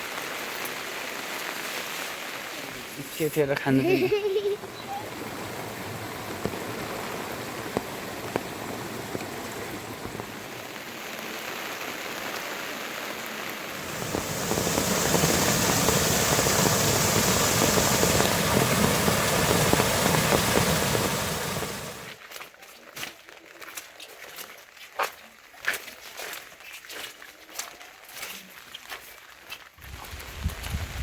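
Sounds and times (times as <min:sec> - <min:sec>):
rain pattering: 0:00.0 - 0:22.2, 0:29.3 - 0:31.0.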